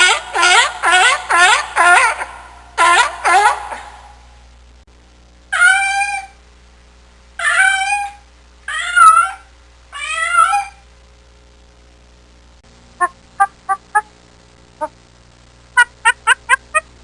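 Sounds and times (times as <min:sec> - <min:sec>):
cat meowing: 0:07.4 - 0:10.8.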